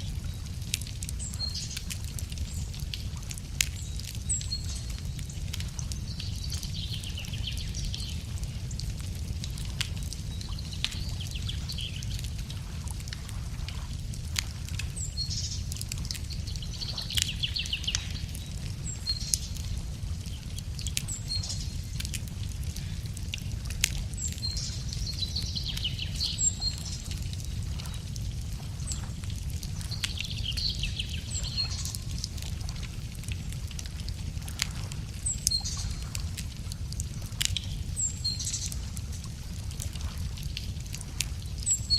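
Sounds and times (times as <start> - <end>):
wood fire crackling and popping: 0.0 - 41.9
songbird singing: 3.7 - 8.8, 9.9 - 12.4, 14.9 - 22.1, 24.1 - 32.4, 35.2 - 36.1, 37.5 - 38.8.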